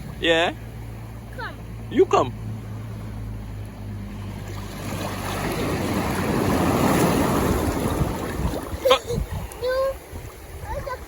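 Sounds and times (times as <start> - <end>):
surf washing up on beach: 4.5 - 11.0.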